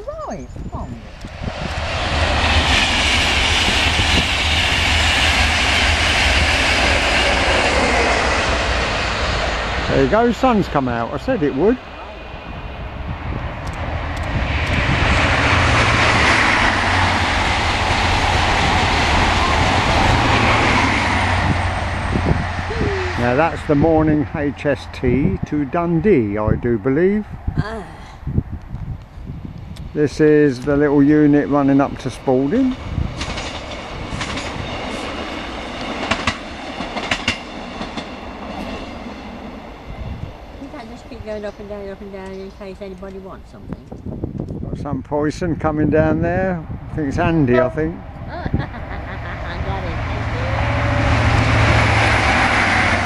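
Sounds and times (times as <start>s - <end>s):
diesel engine hum: 0.0s - 28.6s, 46.4s - 53.0s
train passing at speed: 0.8s - 44.6s, 45.3s - 53.0s
train wheels clicking: 32.7s - 39.0s.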